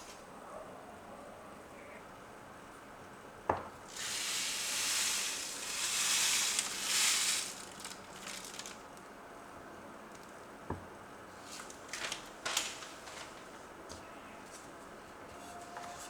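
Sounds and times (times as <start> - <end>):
high hiss: 3.9 - 8.8
faint crackles: 4.0 - 9.1.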